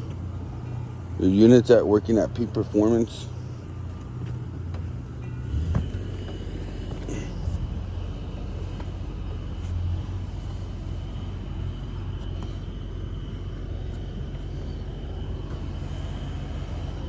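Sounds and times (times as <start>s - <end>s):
low mechanical rumble: 0.0s - 17.0s.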